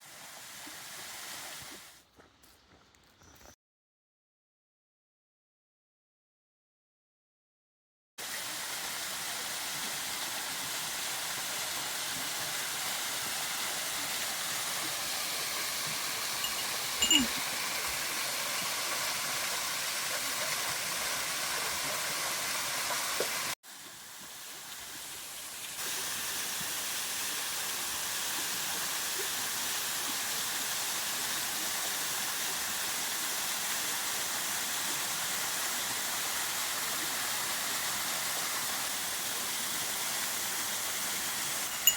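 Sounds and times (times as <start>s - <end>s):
waterfall rushing: 8.2s - 23.6s, 41.4s - 41.9s.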